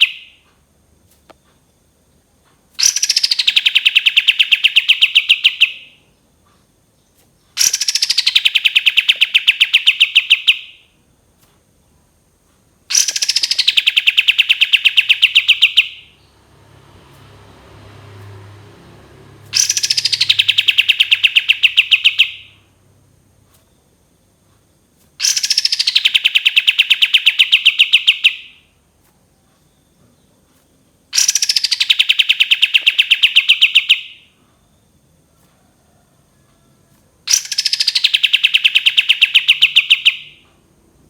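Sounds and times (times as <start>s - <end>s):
songbird trilling song: 0.0s - 0.4s, 2.8s - 10.9s, 12.9s - 16.4s, 19.4s - 24.1s, 25.2s - 28.8s, 29.4s - 34.9s, 37.3s - 40.5s.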